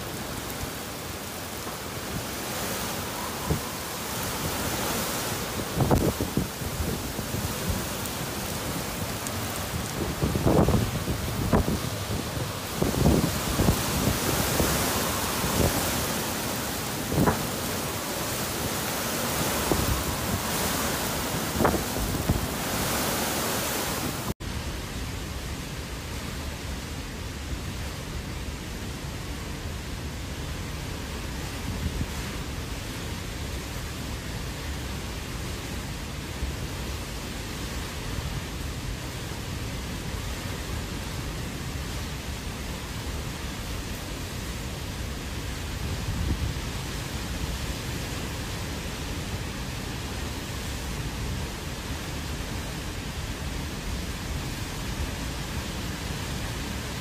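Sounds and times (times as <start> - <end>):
strong wind and heavy rain: 0.0 - 57.0
wind thumping on microphone: 1.6 - 24.3.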